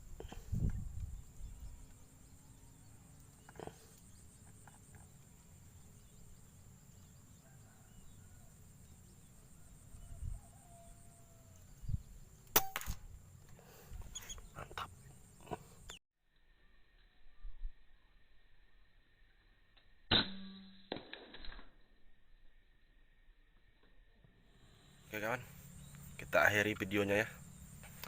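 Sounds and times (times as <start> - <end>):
outdoor background noise: 0.0 - 28.0
sharp crack: 12.4 - 13.1.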